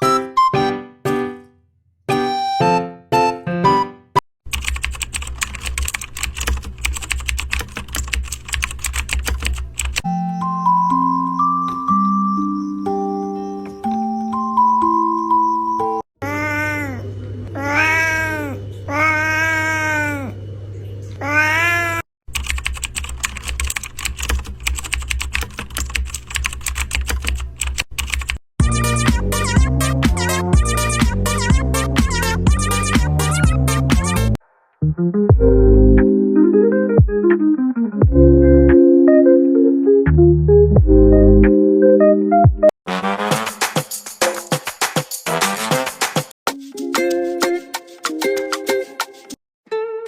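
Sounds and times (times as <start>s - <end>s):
typing on computer keyboard: 4.5s - 10.1s, 22.3s - 28.4s.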